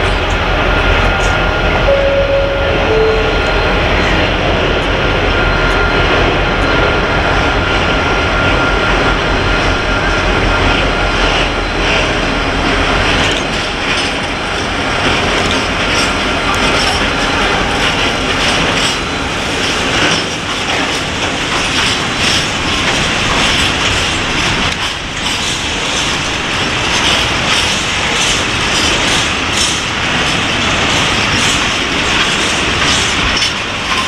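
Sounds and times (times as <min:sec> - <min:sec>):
diesel locomotive engine rumble: 0:00.0 - 0:34.0
wheels clacking over rail joints: 0:09.6 - 0:34.0.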